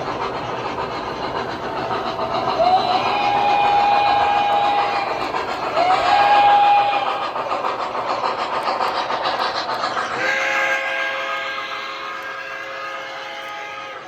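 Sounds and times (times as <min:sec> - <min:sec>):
model train rolling clatter: 0:00.0 - 0:14.0
train whistle: 0:02.6 - 0:05.2, 0:05.8 - 0:07.3, 0:10.2 - 0:14.0
deep multi-note train horn: 0:10.3 - 0:14.0.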